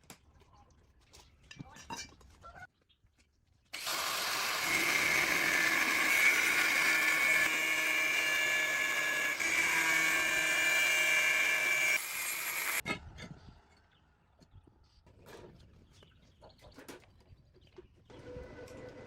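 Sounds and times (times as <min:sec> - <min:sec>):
power tool high-pitched whine: 0:03.8 - 0:12.8.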